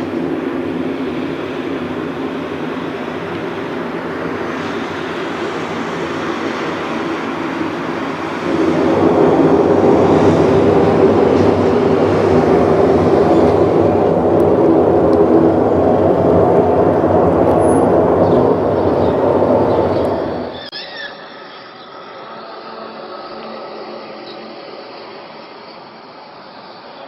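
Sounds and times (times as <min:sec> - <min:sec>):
low rumbling drone: 0:00.0 - 0:20.7.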